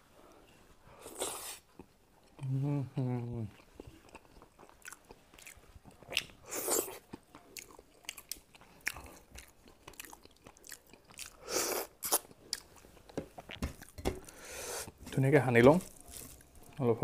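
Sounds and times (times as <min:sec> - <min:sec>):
person chewing: 0:03.5 - 0:16.8.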